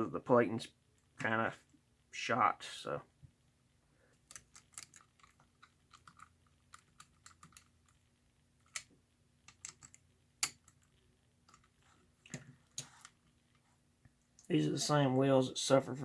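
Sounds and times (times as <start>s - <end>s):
small metal parts clicking: 4.2s - 8.0s, 8.6s - 13.3s.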